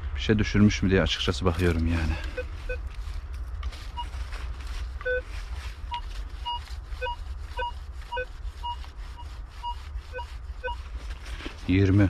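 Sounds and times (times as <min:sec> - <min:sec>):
metal detector beeps: 0:05.0 - 0:05.3, 0:05.9 - 0:10.8.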